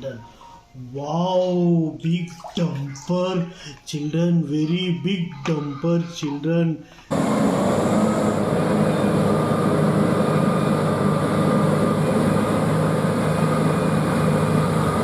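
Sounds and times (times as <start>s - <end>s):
heavy vehicle engine running: 7.1s - 15.0s.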